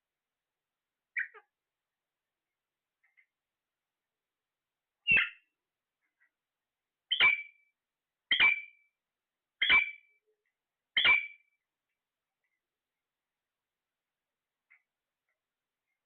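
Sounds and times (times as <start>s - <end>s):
parrot calling: 1.1s - 1.5s.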